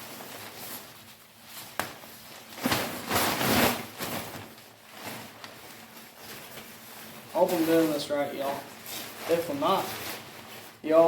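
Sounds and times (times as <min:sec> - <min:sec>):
nylon fabric rustling: 0:00.0 - 0:11.0.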